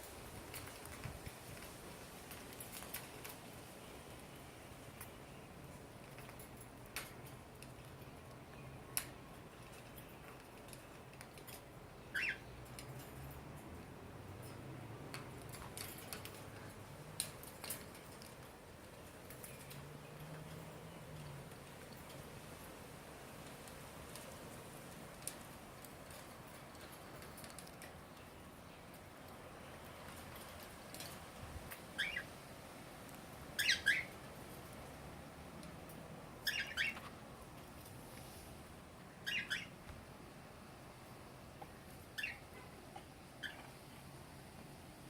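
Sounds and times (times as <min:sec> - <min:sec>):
bird claws clicking on wire cage: 0:00.1 - 0:03.8, 0:04.8 - 0:28.2
cockatiel chirping: 0:12.1 - 0:12.5, 0:32.0 - 0:32.3, 0:33.6 - 0:34.2, 0:36.4 - 0:37.0, 0:39.2 - 0:39.8, 0:42.1 - 0:42.7, 0:43.4 - 0:43.7.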